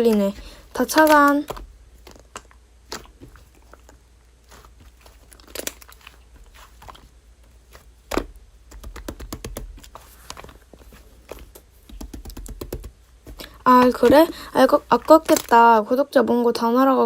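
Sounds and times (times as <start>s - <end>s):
slime clicking and crackling: 0.0s - 10.0s.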